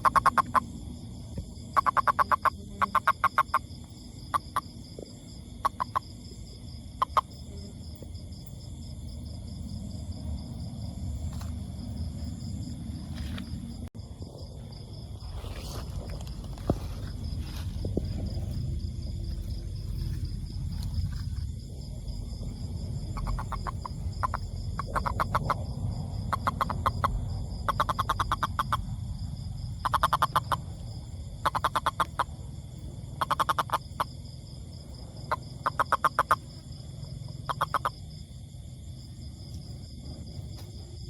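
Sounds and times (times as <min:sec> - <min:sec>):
toad calling in pulsed trills: 0:00.0 - 0:00.7, 0:01.7 - 0:04.8, 0:05.6 - 0:06.2, 0:07.0 - 0:07.6, 0:23.1 - 0:28.9, 0:29.8 - 0:30.8, 0:31.4 - 0:32.4, 0:33.2 - 0:34.2, 0:35.3 - 0:36.6, 0:37.3 - 0:38.0.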